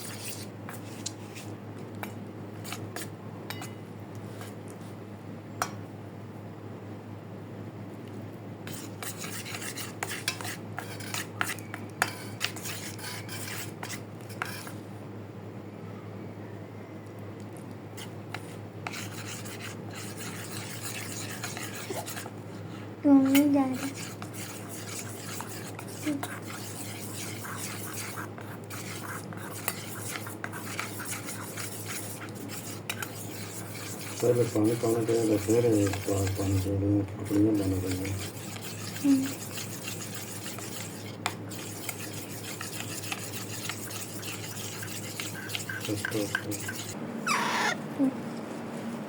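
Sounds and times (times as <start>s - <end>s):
metal spoon scraping in a cup: 8.7s - 14.7s, 18.0s - 22.3s, 23.2s - 47.6s.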